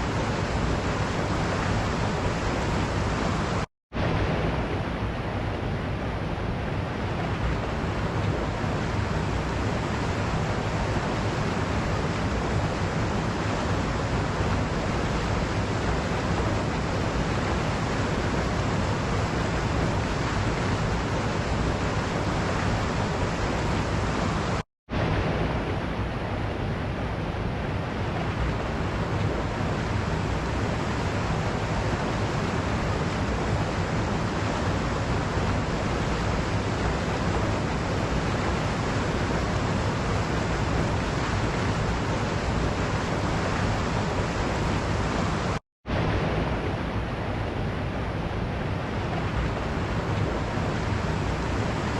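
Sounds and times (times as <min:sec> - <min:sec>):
waterfall rushing: 0:28.7 - 0:51.9.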